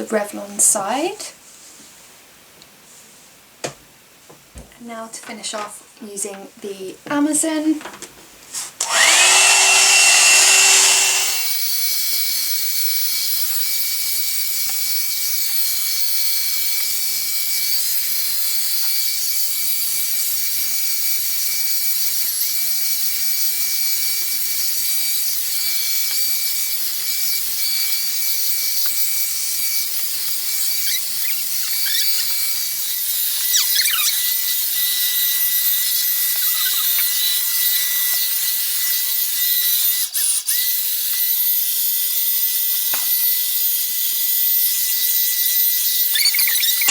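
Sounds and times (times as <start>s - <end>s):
hair dryer motor whine: 8.8s - 11.6s.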